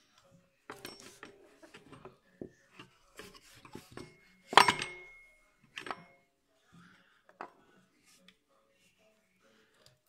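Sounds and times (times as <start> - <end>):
metal tools clinking: 0.7 - 2.1, 3.2 - 6.2.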